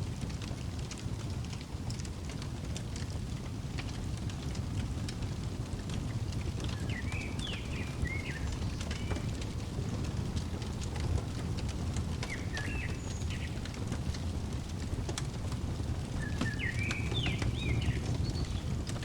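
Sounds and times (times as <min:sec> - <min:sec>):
wood fire crackling: 0:00.0 - 0:19.0
songbird chirping: 0:06.6 - 0:18.8.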